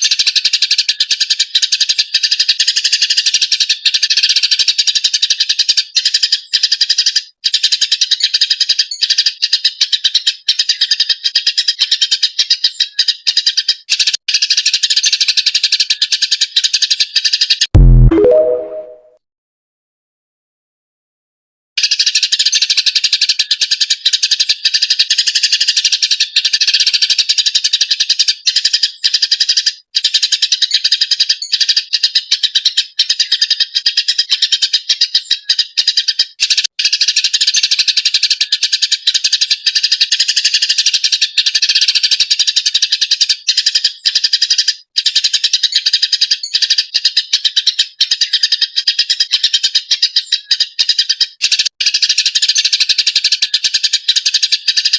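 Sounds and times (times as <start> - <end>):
sparrows chirping and chattering: 0.0 - 17.6, 21.8 - 54.9.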